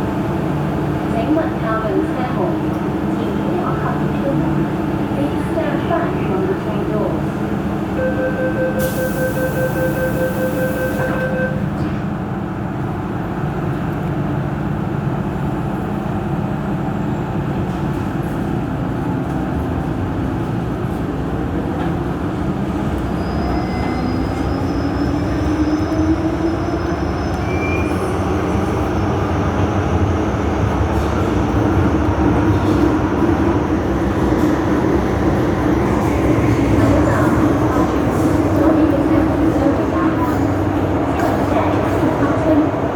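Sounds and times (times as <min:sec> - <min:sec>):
train wheels and motors rumbling: 0:11.6 - 0:42.9.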